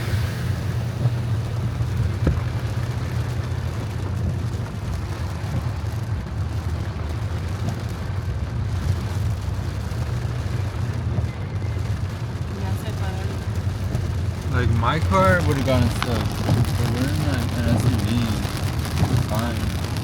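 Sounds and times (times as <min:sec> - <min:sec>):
water washing: 0:00.0 - 0:05.9, 0:12.2 - 0:20.0
rain: 0:00.0 - 0:20.0
vehicle rumble: 0:00.0 - 0:20.0.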